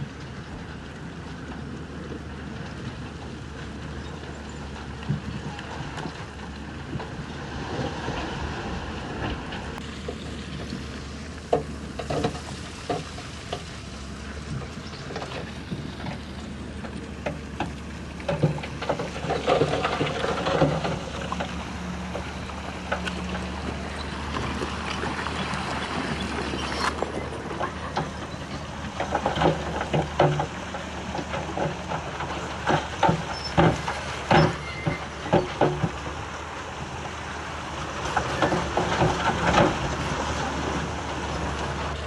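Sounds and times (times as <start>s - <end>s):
diesel engine running under load: 0.0s - 42.0s
metal clanks and knocks: 3.7s - 13.9s, 14.5s - 37.0s, 38.0s - 42.0s.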